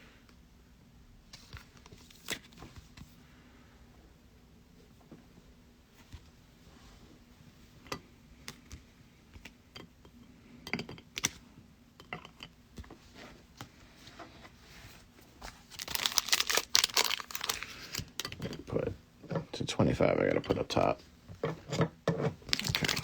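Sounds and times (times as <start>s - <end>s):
plastic wrapper crinkling: 15.6s - 18.8s, 22.5s - 23.0s.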